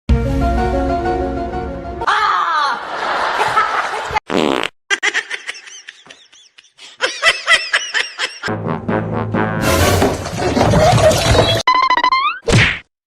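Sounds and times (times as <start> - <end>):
high chirping laughs: 4.9 - 8.5.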